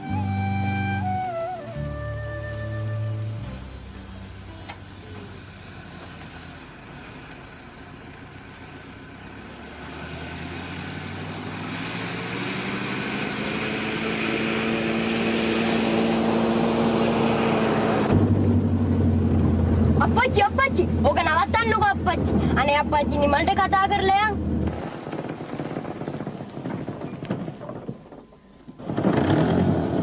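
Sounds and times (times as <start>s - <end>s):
car engine approaching: 0.0s - 30.0s
engine drone inside car: 3.7s - 9.8s, 12.2s - 24.8s.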